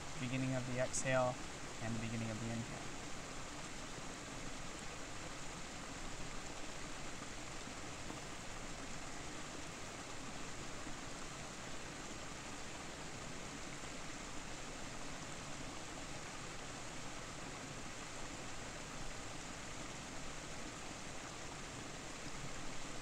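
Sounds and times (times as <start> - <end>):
waterfall roaring: 0.0 - 19.6.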